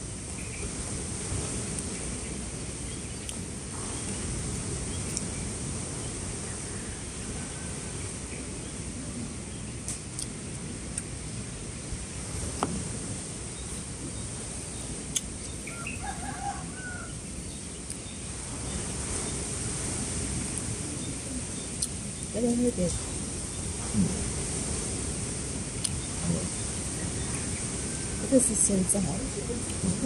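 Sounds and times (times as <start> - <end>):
low background noise: 0.0 - 30.0
faint bird call: 13.7 - 18.0.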